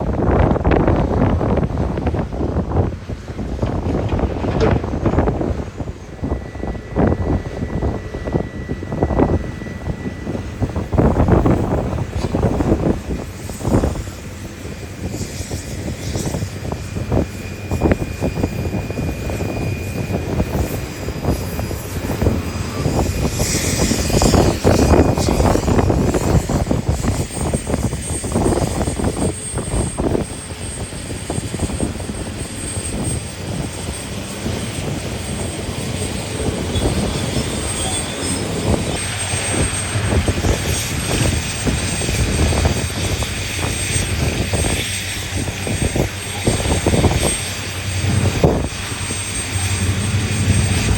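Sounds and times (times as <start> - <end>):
heavy diesel engines droning: 0.0 - 50.9
thin high whine: 3.3 - 50.9
knocks and rumbles: 3.6 - 6.0.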